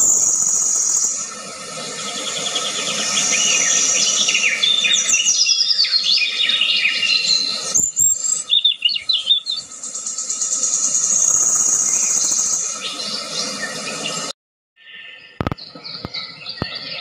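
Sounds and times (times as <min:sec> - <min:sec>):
high insect buzz: 0:00.0 - 0:05.4, 0:09.7 - 0:12.9
songbirds chirping: 0:00.0 - 0:17.0.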